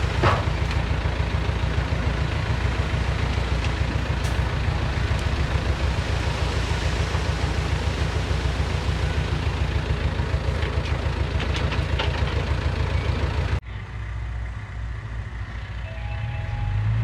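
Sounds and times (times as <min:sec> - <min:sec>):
heavy diesel engine throbbing: 0:00.0 - 0:17.0
quieter engine running: 0:00.0 - 0:17.0.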